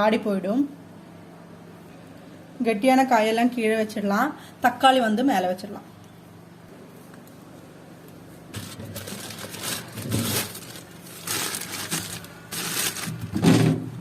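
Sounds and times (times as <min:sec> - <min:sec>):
plastic bags rustling: 0:08.5 - 0:13.9.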